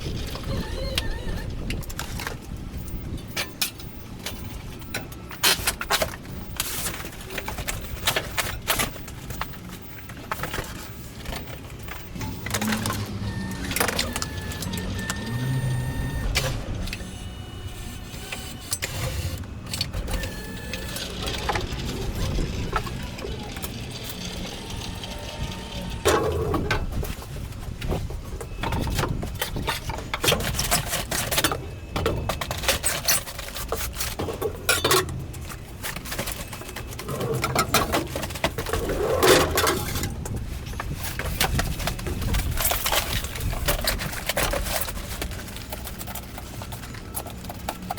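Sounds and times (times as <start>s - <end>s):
boxes clattering and knocking: 0.0s - 15.6s, 19.8s - 47.9s
short thin beeps: 2.8s - 16.3s.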